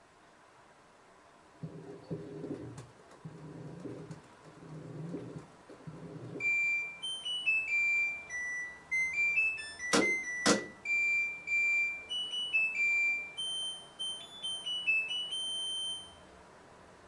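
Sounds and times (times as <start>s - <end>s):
washing machine beeping melody: 4.8s - 16.4s.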